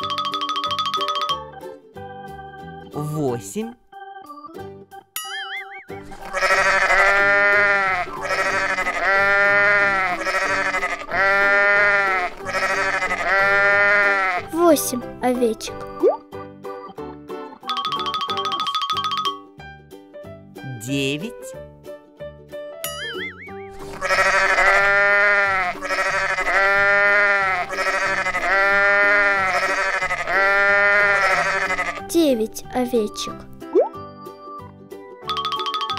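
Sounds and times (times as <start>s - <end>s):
sheep bleating: 6.2s - 14.5s, 23.8s - 32.1s.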